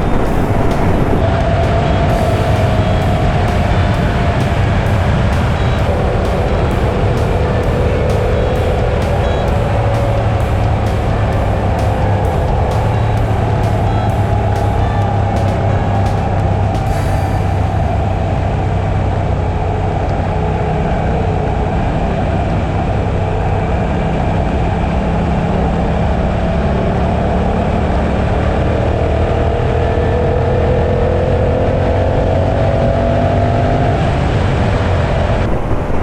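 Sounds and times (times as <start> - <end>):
motorcycle engine running: 0.0 - 20.4
wind rush: 0.0 - 26.8, 29.0 - 36.0.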